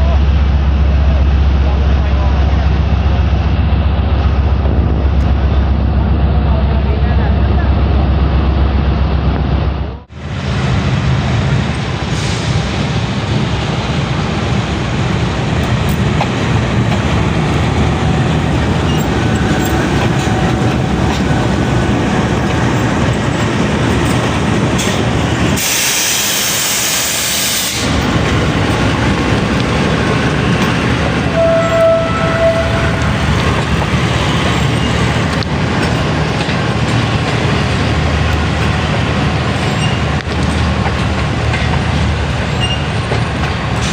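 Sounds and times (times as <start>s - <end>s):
train wheels rumbling on rails: 0.0s - 43.9s
train hiss: 11.9s - 14.0s, 24.8s - 28.2s.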